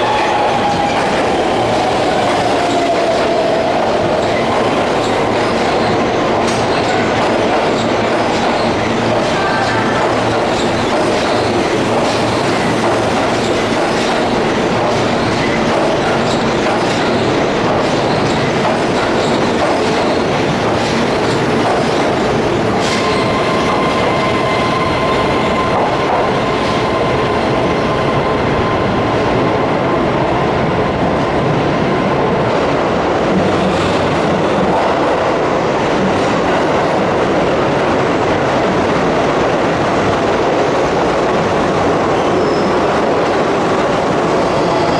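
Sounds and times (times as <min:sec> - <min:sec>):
rail joints clacking: 0:00.0 - 0:28.8
train wheels rumbling on rail: 0:00.0 - 0:44.9.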